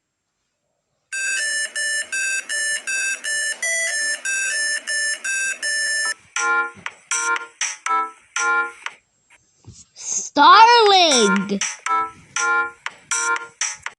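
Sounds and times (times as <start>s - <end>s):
electronic beeping melody: 1.2s - 8.8s, 11.1s - 13.6s.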